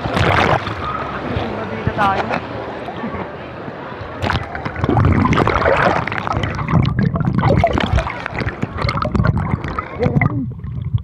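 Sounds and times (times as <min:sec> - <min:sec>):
seawater sloshing and gurgling: 0:00.0 - 0:02.4, 0:04.2 - 0:11.0
water splashes: 0:00.0 - 0:02.9, 0:03.6 - 0:11.0
bubbly clicks: 0:04.2 - 0:11.0.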